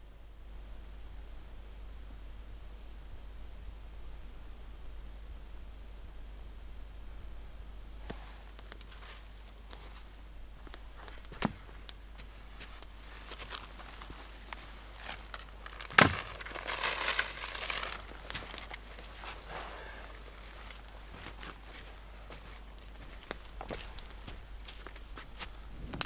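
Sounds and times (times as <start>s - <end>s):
rustling handling noise: 8.1s - 26.0s.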